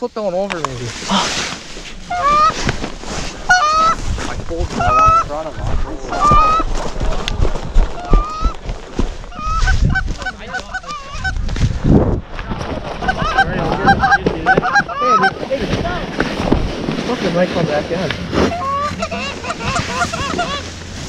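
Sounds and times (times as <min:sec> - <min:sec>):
low rumble of wind: 0:00.0 - 0:21.0
geese honking: 0:02.0 - 0:07.0, 0:07.9 - 0:08.6, 0:09.2 - 0:11.5, 0:12.9 - 0:15.5, 0:18.3 - 0:21.0.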